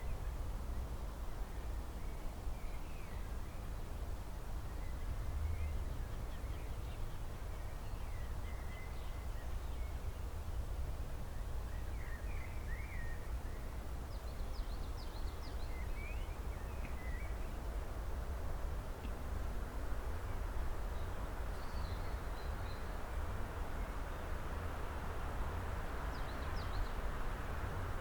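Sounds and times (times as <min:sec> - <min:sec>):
songbirds chirping: 0:11.7 - 0:18.1.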